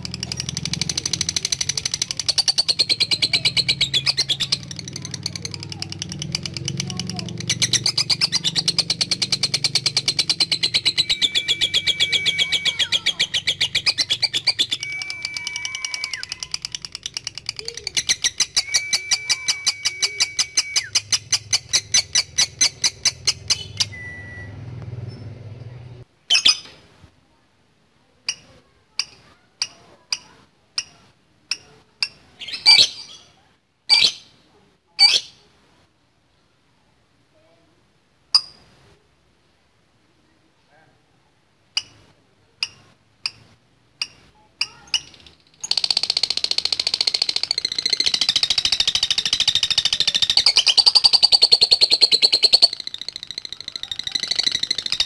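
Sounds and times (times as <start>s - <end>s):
lovebird chattering trill: 0.0s - 24.2s, 28.2s - 33.3s, 33.9s - 34.3s, 35.0s - 35.4s, 41.8s - 55.0s
steady whistled tones: 10.5s - 16.6s, 18.2s - 21.2s, 23.6s - 24.6s.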